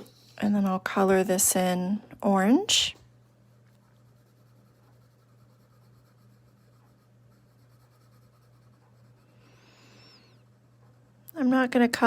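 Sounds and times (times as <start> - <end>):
low steady hum: 0.0 - 12.0
pencil scratching on paper: 3.5 - 9.3.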